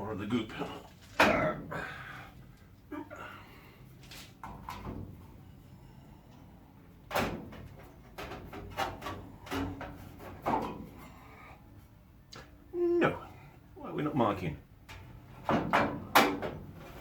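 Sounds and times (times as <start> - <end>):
metal clunks against car bodywork: 7.1 - 11.2, 14.9 - 16.8.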